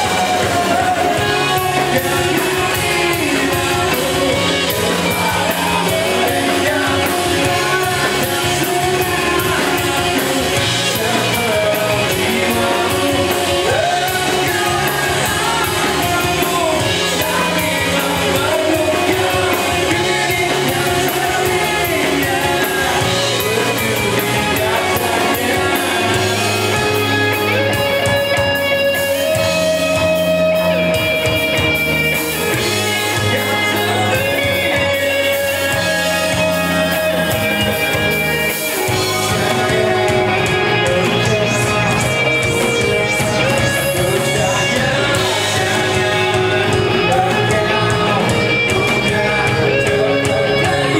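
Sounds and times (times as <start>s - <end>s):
guitar-driven band: 0.0s - 50.9s
rock song with singer: 0.0s - 50.9s.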